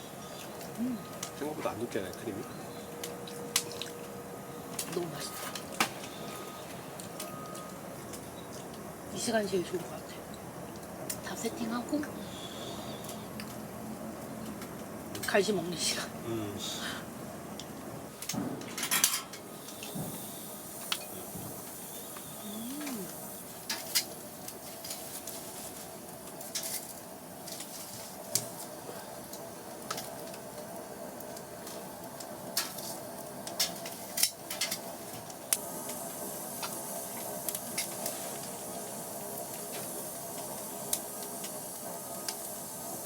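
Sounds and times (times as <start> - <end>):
steady hiss: 10.8 - 14.3, 18.0 - 43.0
dishes and utensils clinking: 18.7 - 19.4.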